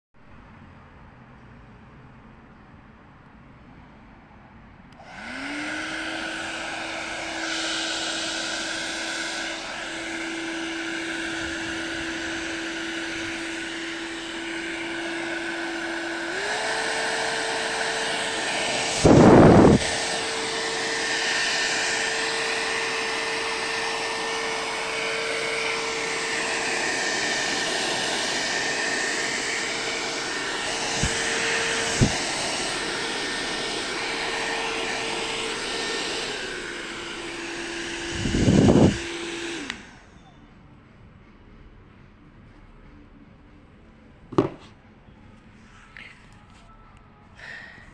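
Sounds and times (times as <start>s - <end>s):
hair dryer whine: 4.9s - 40.3s, 44.4s - 44.6s
gust of rushing air: 18.6s - 20.1s.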